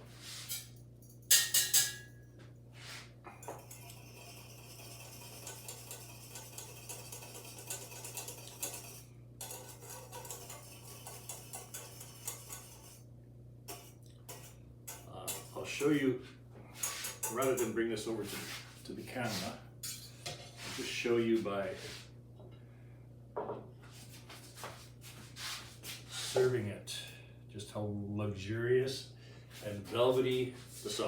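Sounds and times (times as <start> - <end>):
steady low hum: 0.0 - 31.0
metal utensils clinking on pots: 0.5 - 2.2, 3.4 - 13.0, 13.7 - 16.0, 16.8 - 17.8, 19.8 - 20.4.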